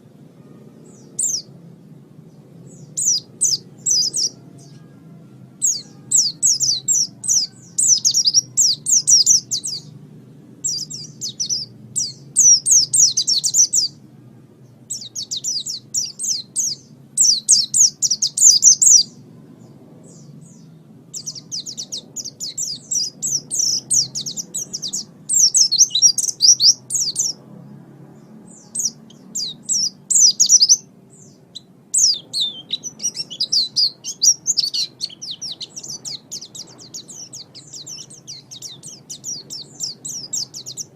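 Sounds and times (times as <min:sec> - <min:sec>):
faint low hum: 0:00.0 - 0:40.9
bird twittering: 0:00.8 - 0:01.5, 0:05.6 - 0:09.9, 0:10.6 - 0:14.0, 0:20.2 - 0:27.4, 0:28.5 - 0:40.9.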